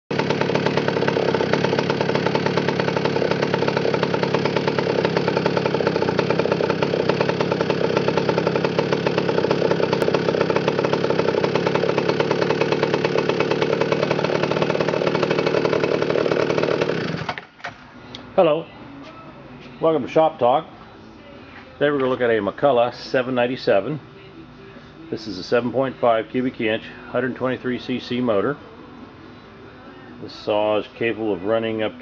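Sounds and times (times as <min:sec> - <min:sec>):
chainsaw engine running: 0:00.1 - 0:17.6.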